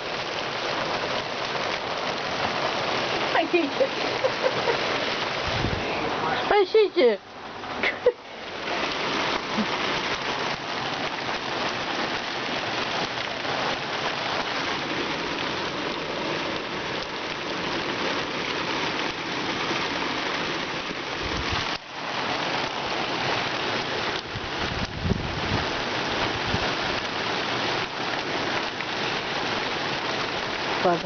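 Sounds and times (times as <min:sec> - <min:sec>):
heavy rain pouring: 0:00.0 - 0:31.0.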